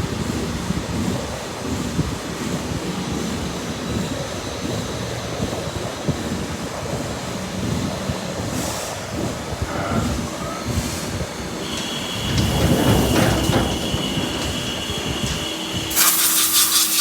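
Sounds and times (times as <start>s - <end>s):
lathe rumbling: 9.1s - 17.0s
brief hiss: 15.9s - 17.0s.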